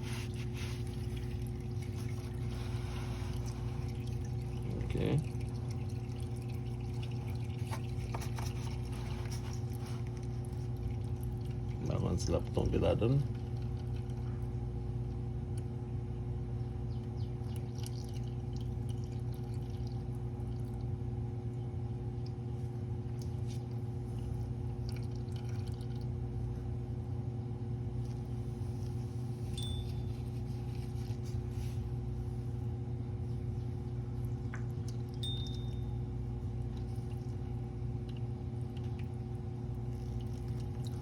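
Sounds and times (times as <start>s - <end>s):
steady low hum: 0.0s - 41.0s
oil draining into a pan: 0.7s - 8.9s, 17.4s - 21.0s, 24.2s - 26.2s.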